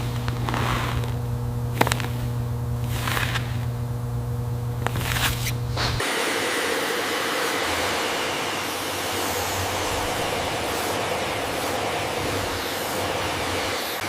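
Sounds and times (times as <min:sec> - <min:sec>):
low machine hum: 0:00.0 - 0:14.0
rushing hiss of air: 0:05.7 - 0:14.0.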